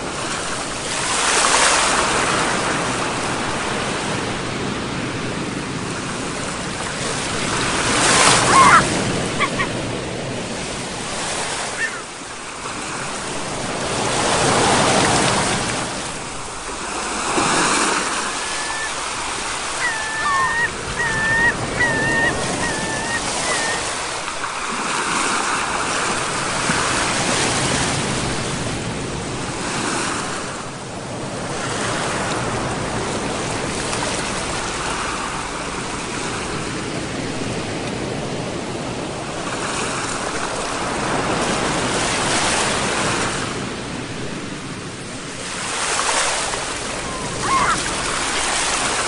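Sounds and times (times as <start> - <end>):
sea waves washing ashore: 0.0 - 49.0
high whistled calls: 18.4 - 24.3.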